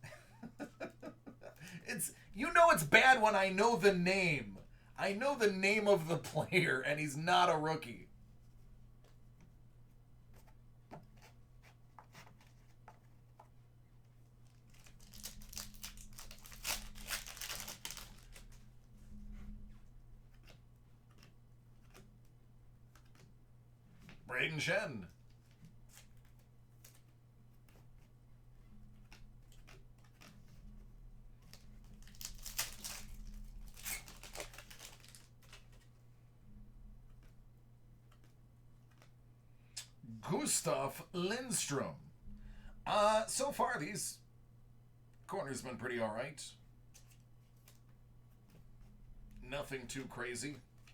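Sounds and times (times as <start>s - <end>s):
wrapper tearing and crinkling: 14.5s - 18.6s, 31.4s - 35.9s
faint clicks of cards handled: 19.3s - 24.3s, 25.1s - 36.0s, 37.0s - 40.0s, 46.8s - 49.4s.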